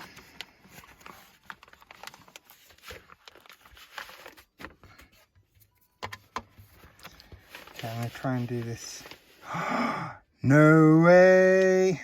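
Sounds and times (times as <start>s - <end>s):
packaging rustling and clicking: 0.0s - 9.3s.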